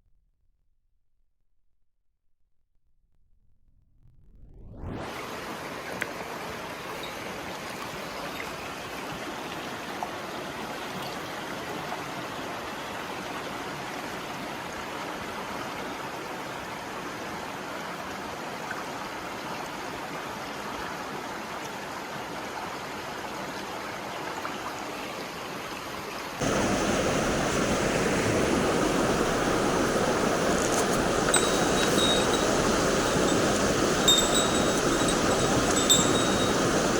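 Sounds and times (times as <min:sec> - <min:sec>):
stream water rushing: 0:05.1 - 0:36.9.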